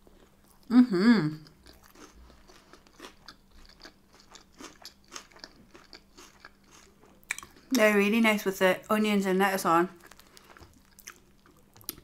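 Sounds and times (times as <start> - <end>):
person chewing: 0.0 - 0.7, 1.3 - 7.8, 10.0 - 12.0.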